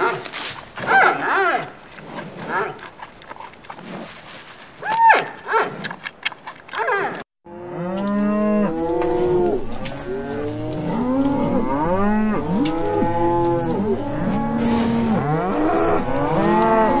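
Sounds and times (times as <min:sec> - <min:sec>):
cows mooing: 0:06.8 - 0:17.0.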